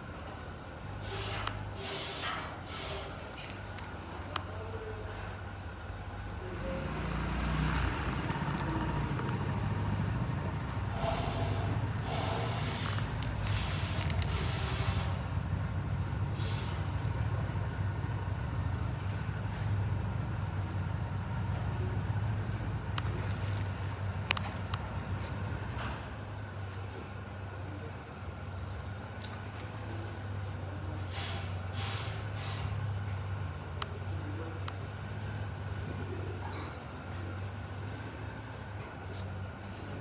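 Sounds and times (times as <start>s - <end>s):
short bursts of hiss: 1.0s - 3.3s, 10.9s - 15.2s, 16.4s - 16.8s, 31.1s - 32.8s
motorcycle engine low rumble: 3.5s - 40.0s.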